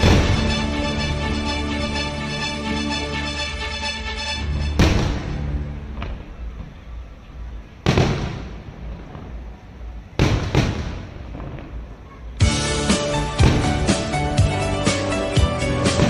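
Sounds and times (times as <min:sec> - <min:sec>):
rumble after bangs: 0:00.0 - 0:02.2, 0:04.4 - 0:16.0
fireworks shells bursting: 0:00.0 - 0:02.6.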